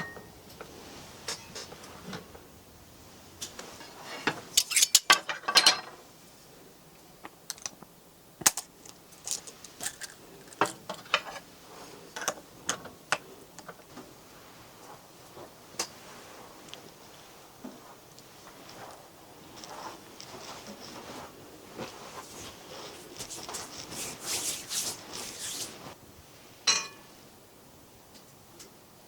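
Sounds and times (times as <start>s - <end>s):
cooking gear clicking and clattering: 8.4s - 11.4s.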